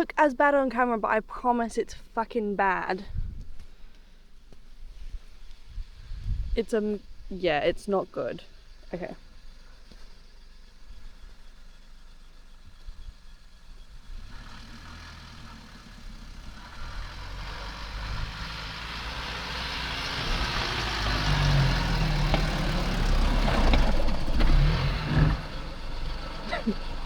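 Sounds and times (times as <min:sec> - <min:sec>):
car engine revving under load: 0:08.5 - 0:27.0.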